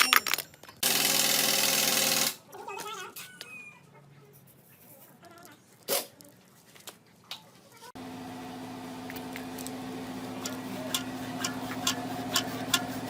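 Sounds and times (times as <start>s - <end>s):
small motor running: 0.8s - 2.4s, 8.0s - 13.0s.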